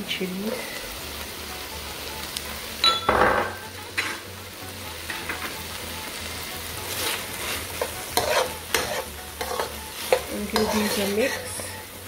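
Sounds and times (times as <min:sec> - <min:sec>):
onions sizzling in hot oil: 0:00.0 - 0:12.0
metal spoon scraping a pan: 0:03.9 - 0:04.3, 0:06.9 - 0:12.0.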